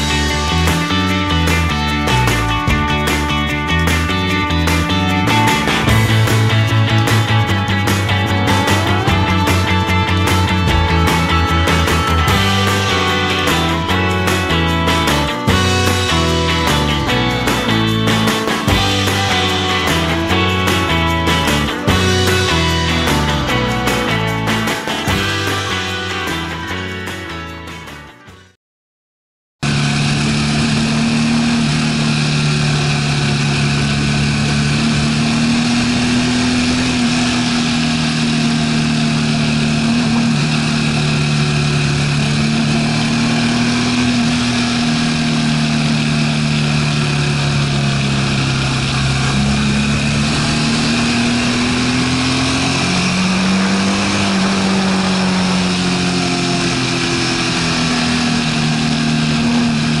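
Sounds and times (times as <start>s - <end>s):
motorcycle engine revving: 0.0s - 27.4s, 29.6s - 60.0s
wind and road noise: 29.6s - 60.0s.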